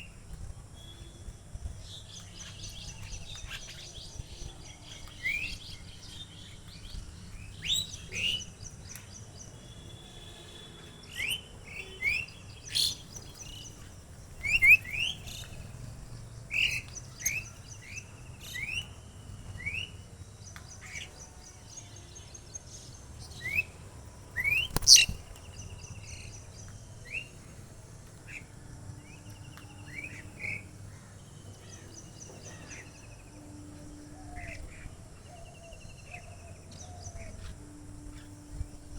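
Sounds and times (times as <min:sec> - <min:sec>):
small birds chirping: 0:01.7 - 0:10.3, 0:11.0 - 0:19.0, 0:24.4 - 0:27.5
sharp bird call: 0:24.5 - 0:25.2.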